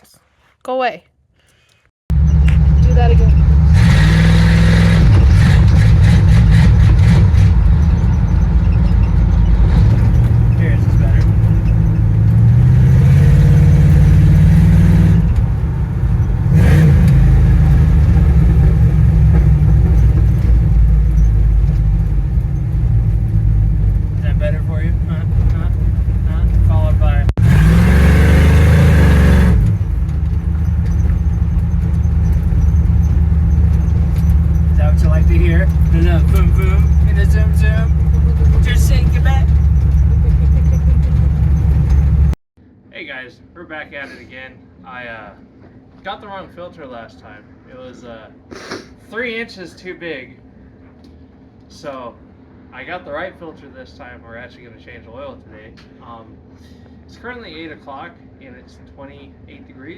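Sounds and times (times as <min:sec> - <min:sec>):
car engine revving and idling: 0:02.1 - 0:42.4.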